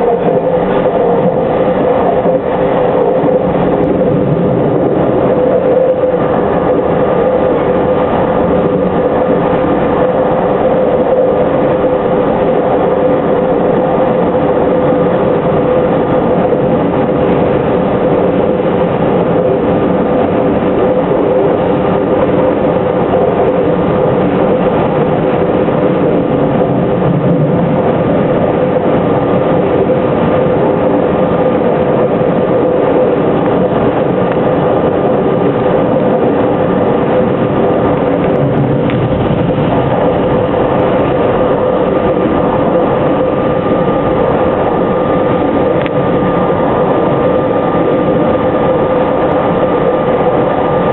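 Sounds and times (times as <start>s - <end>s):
electric train running: 0.0s - 50.9s.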